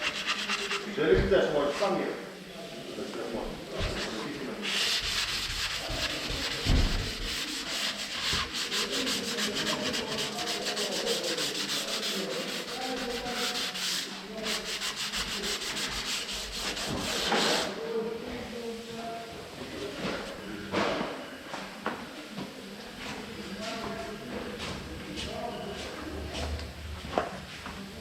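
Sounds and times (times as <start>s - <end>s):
sandpaper rubbing on metal panel: 0.0s - 1.0s, 3.8s - 17.7s.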